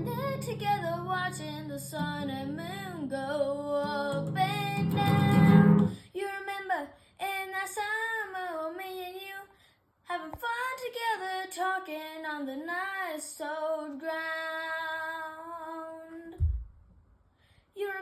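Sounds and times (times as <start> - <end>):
girl singing unaccompanied: 0.0 - 16.4, 17.8 - 18.0
low thump: 16.4 - 16.8.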